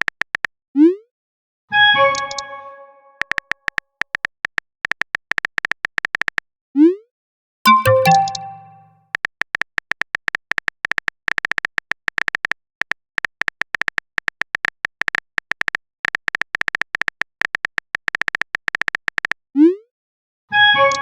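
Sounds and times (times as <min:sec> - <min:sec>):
phone keyboard typing clicks: 0:07.7 - 0:08.8.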